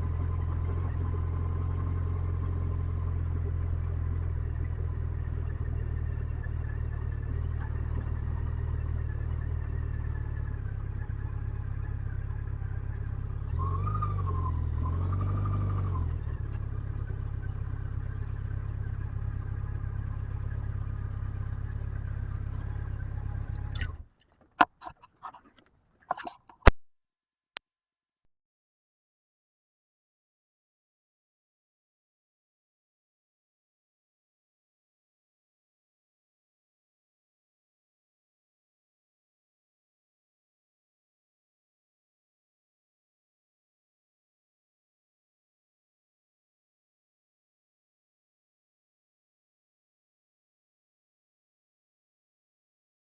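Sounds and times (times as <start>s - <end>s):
motorcycle engine idling: 0.0s - 14.8s, 16.0s - 26.6s
motorcycle throttle blips: 0.0s - 26.8s
sharp clicks and knocks: 23.5s - 26.8s.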